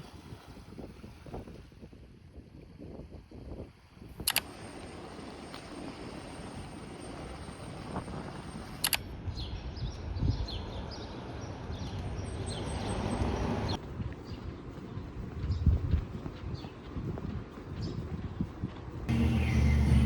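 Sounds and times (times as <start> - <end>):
outdoor background noise: 0.0 - 20.0
sharp clicks: 4.2 - 4.6, 8.8 - 9.1.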